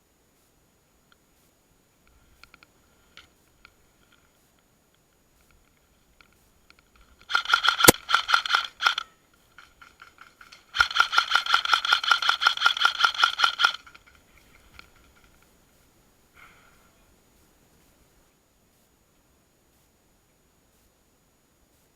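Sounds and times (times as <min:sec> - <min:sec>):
gearbox whirring: 0:07.0 - 0:15.4
airsoft rifle firing bursts: 0:07.2 - 0:14.1.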